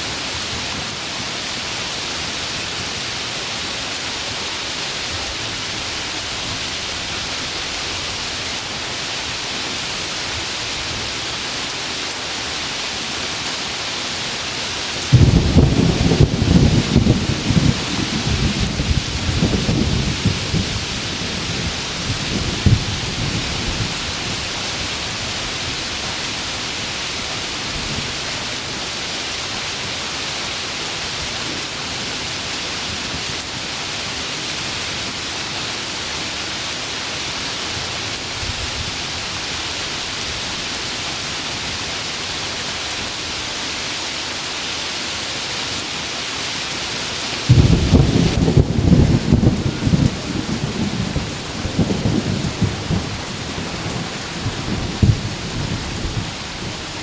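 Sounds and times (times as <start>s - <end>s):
heavy rain pouring: 0.0s - 57.0s
sharp thunder crack: 15.1s - 20.4s, 47.5s - 50.2s
loud clap of thunder: 15.1s - 20.7s, 47.5s - 53.1s, 55.0s - 55.3s
thunder rumble: 15.1s - 24.1s, 47.5s - 56.4s.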